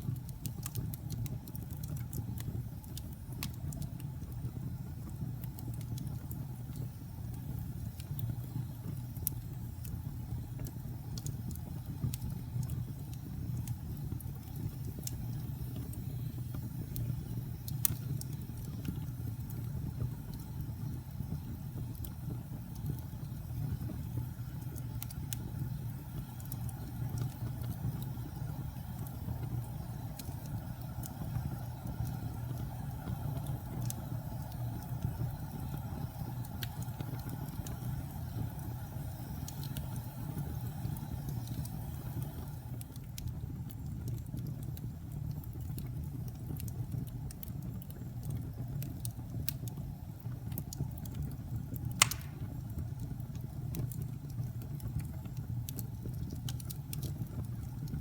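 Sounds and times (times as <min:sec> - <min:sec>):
wood fire crackling: 0:00.0 - 0:58.0
loud pop from fire: 0:52.0 - 0:52.7.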